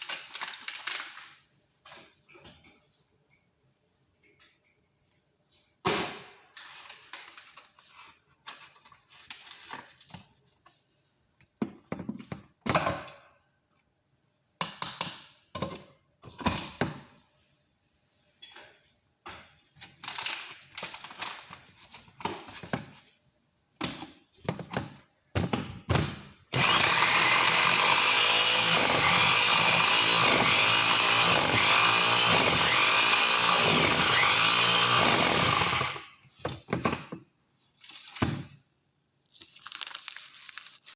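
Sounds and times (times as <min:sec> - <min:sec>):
electric blender running: 0:26.5 - 0:36.1.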